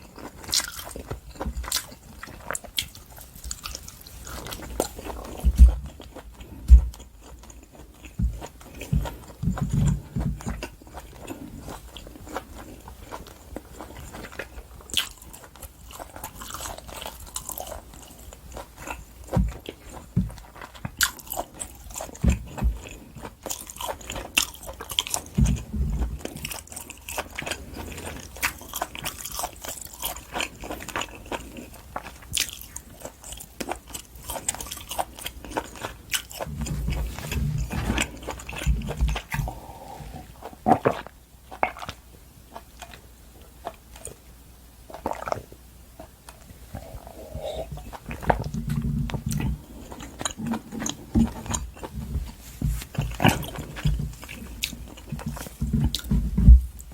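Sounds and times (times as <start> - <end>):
chewing and biting steak: 0.0 - 43.0, 44.9 - 52.1, 52.7 - 56.2.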